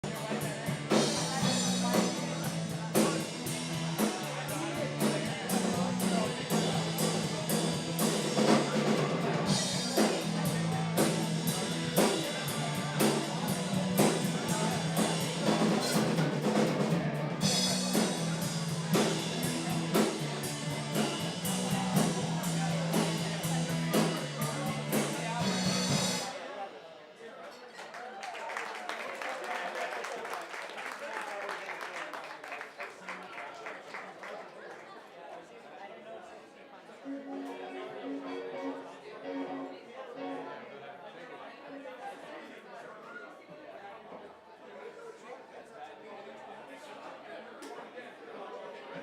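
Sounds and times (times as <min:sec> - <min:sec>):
held bass notes: 0:00.0 - 0:26.3, 0:37.1 - 0:40.6
rock band instrumental: 0:00.0 - 0:26.9, 0:37.1 - 0:40.6.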